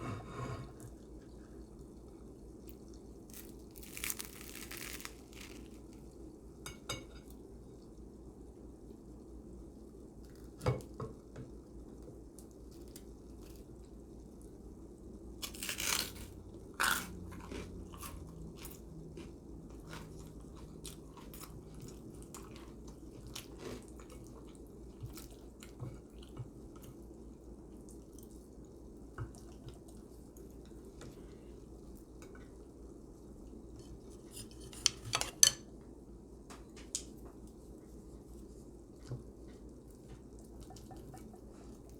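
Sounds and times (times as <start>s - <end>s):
chewing: 16.8s - 27.0s.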